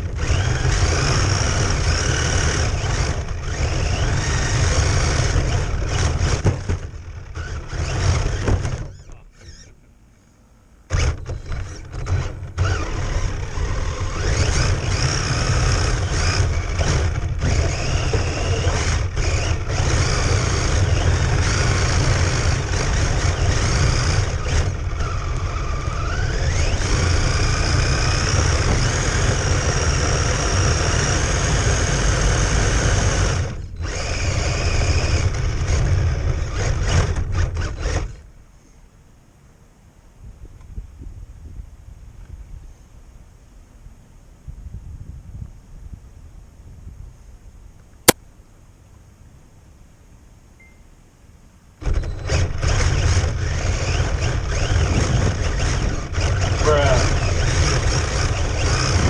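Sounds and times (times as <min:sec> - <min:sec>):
electric motor whining: 0:00.0 - 0:09.9, 0:10.9 - 0:38.2, 0:51.8 - 0:59.0.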